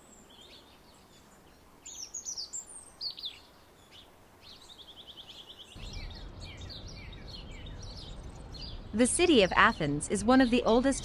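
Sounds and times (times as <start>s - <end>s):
small birds singing: 0.0s - 11.0s
low background rumble: 5.8s - 11.0s.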